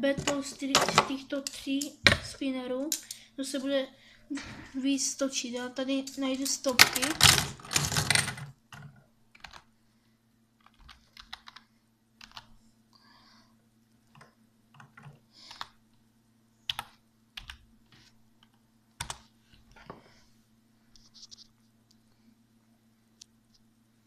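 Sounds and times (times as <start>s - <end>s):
faint steady hum: 0.0s - 24.0s
typing on a keyboard: 8.0s - 9.7s, 10.6s - 12.5s, 16.7s - 17.6s.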